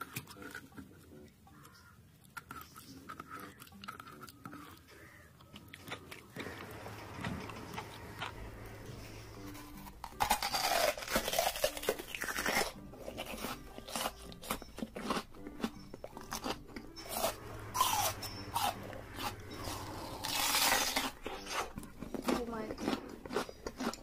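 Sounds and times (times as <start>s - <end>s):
crunching and chewing raw onion: 0.0s - 24.0s.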